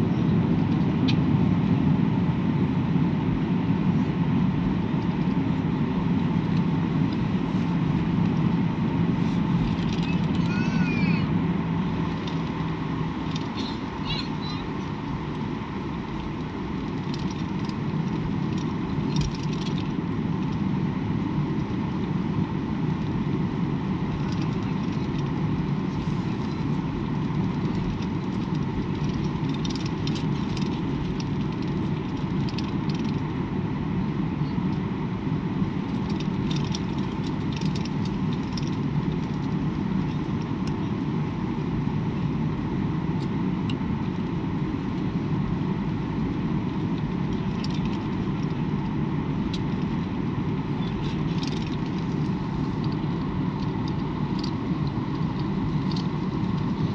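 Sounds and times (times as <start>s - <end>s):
faint steady whine: 0.0s - 56.9s
jet engines droning: 0.0s - 56.9s
light rattles and clicks: 6.4s - 7.4s, 9.4s - 11.2s, 12.0s - 20.7s, 24.0s - 33.4s, 35.6s - 41.8s, 46.2s - 56.9s.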